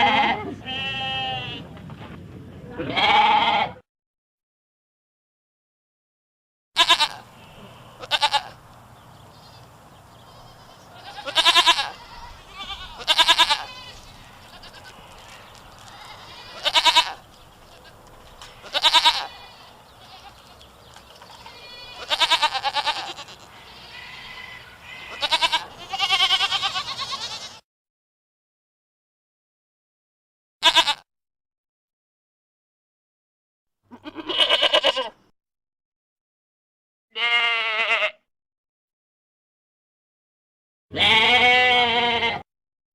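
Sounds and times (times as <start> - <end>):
goat bleating: 0.0 - 1.7, 2.8 - 3.8, 6.8 - 8.6, 9.4 - 27.6, 30.6 - 31.0, 33.9 - 35.2, 37.2 - 38.2, 40.9 - 42.4.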